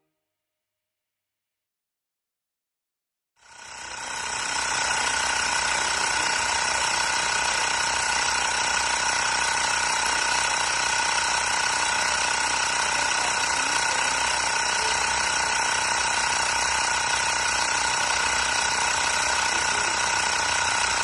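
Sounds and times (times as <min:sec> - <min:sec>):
electric air compressor running: 0:03.4 - 0:21.0.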